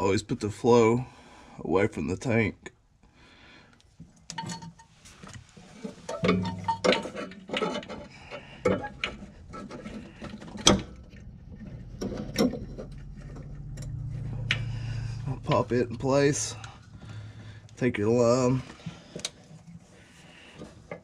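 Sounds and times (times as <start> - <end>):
fuel filter fittings clicking and clinking: 4.2 - 17.8, 18.6 - 21.0.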